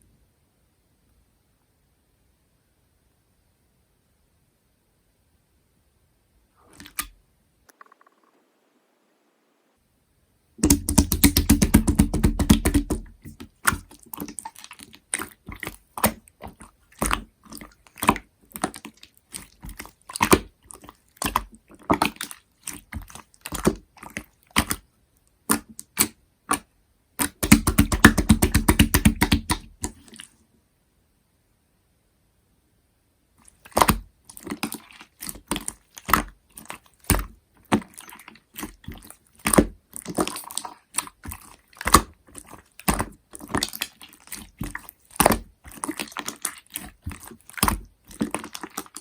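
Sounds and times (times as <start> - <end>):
hands squishing slime: 6.6 - 7.1, 10.6 - 24.8, 25.4 - 30.3, 33.4 - 49.0.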